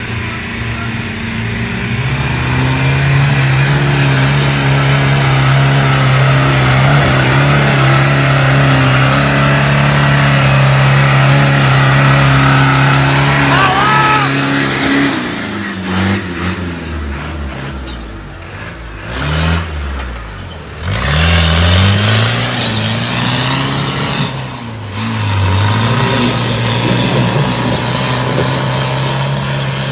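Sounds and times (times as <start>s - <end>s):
engine revving: 0.0s - 29.9s.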